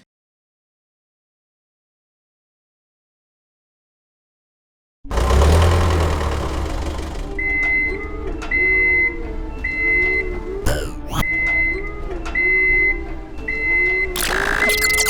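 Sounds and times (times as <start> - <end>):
high electronic beeps: 10.7 - 11.3, 14.2 - 15.0.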